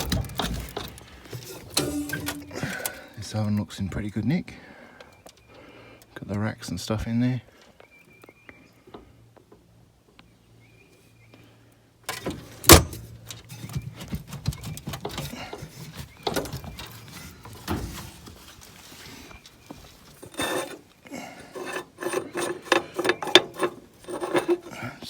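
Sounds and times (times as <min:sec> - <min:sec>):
metal knocks and scrapes: 0:00.0 - 0:02.8, 0:12.1 - 0:18.7, 0:19.7 - 0:24.8
metal parts clanking and rattling: 0:00.0 - 0:03.0, 0:12.1 - 0:18.2, 0:20.0 - 0:24.9.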